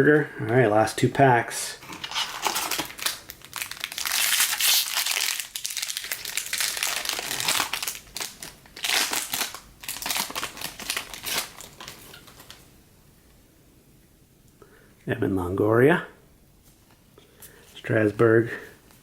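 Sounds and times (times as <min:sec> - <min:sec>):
plastic wrapper crinkling: 0:01.8 - 0:12.6.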